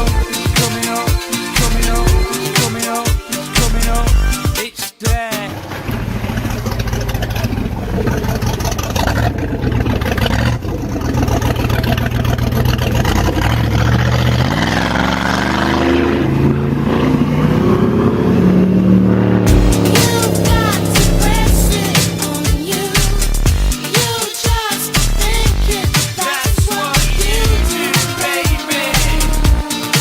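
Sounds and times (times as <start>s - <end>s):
wind: 5.6s - 15.4s
boat engine running: 5.6s - 25.9s.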